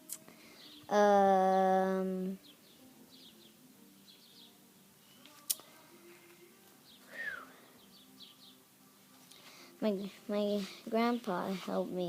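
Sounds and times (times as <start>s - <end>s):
birds chirping: 0.4s - 5.4s, 6.8s - 8.6s.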